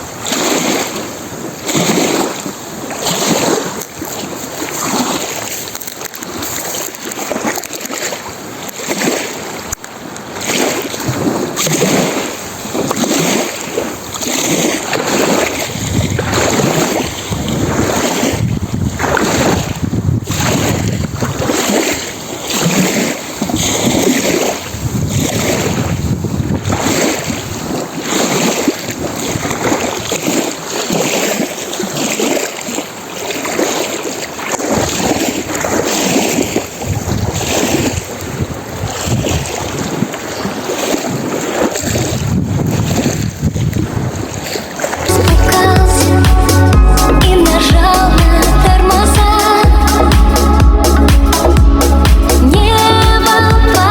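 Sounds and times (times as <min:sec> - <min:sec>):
waves breaking on shore: 0:00.0 - 0:53.9
wind gusting on microphone: 0:10.6 - 0:30.3, 0:34.7 - 0:53.9.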